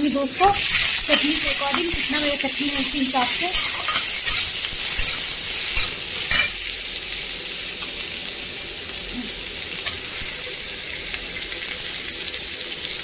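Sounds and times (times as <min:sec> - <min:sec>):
onion sizzling in hot oil: 0:00.0 - 0:13.0
metal spatula scraping pan: 0:00.6 - 0:06.6.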